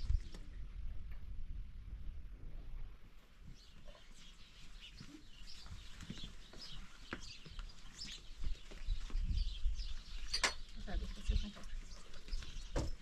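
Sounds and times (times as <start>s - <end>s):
birds chirping: 3.4s - 13.0s.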